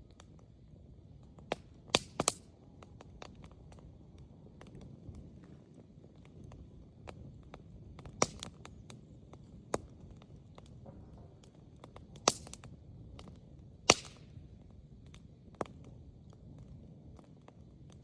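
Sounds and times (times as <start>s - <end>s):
wood fire crackling: 0.0s - 18.0s
sharp pops: 12.2s - 12.6s, 13.9s - 14.2s.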